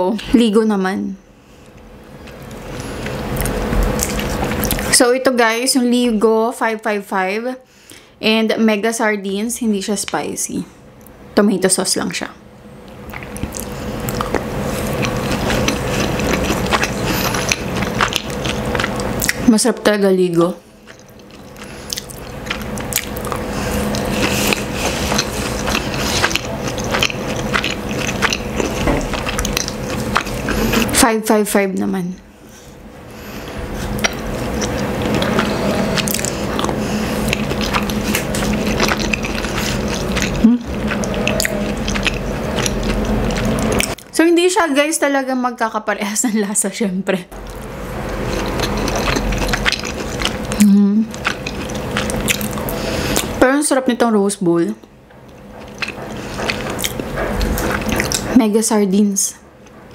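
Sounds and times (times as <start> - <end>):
chewing with mouth clicks: 1.6 - 4.9, 12.9 - 19.5, 20.8 - 31.0, 33.4 - 44.1, 47.4 - 53.4, 55.1 - 58.4.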